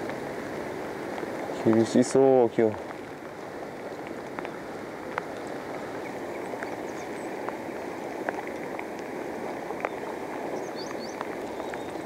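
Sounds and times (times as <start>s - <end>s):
river water rushing: 0.0s - 12.0s
small ticks and drips: 0.0s - 12.0s.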